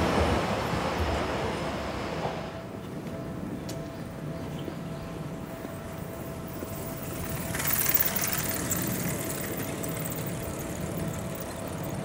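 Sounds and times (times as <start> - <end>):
electric train rumbling: 0.0 - 12.0
faint steady tone: 2.5 - 12.0.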